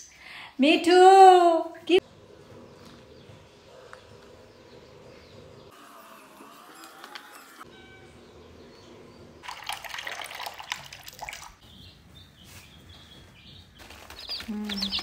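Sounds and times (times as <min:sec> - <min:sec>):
parrot splashing in water: 0:09.4 - 0:11.6.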